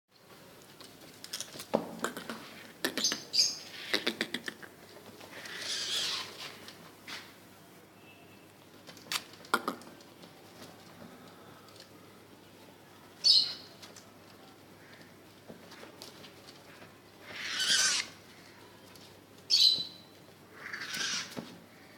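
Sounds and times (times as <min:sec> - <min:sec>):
wing flutters: 0:05.3 - 0:06.6, 0:17.2 - 0:18.2, 0:20.6 - 0:21.4.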